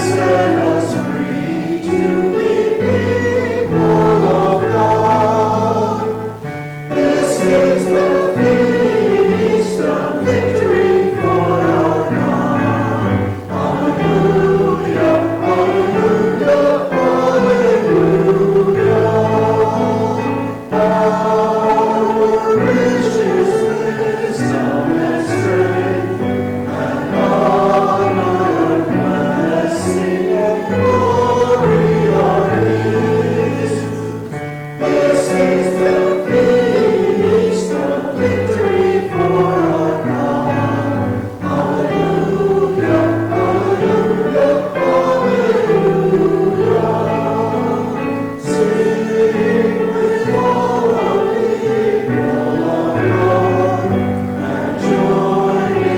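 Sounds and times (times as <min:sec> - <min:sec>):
congregation singing a hymn: 0:00.0 - 0:55.9
piano accompaniment: 0:00.0 - 0:55.9.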